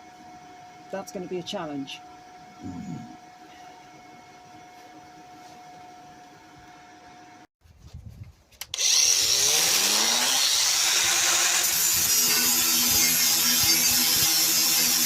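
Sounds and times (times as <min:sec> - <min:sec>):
angle grinder cutting steel: 0:08.7 - 0:15.0.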